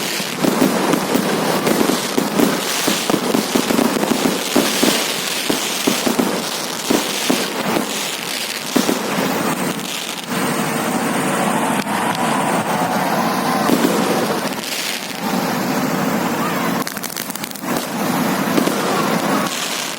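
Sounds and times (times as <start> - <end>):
fireworks popping and crackling: 0.0 - 19.9.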